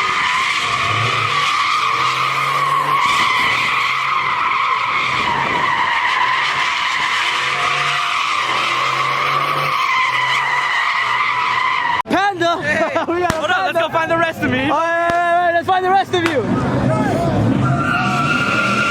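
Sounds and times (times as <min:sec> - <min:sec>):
car tyres squealing: 0:00.0 - 0:12.1, 0:16.1 - 0:18.9.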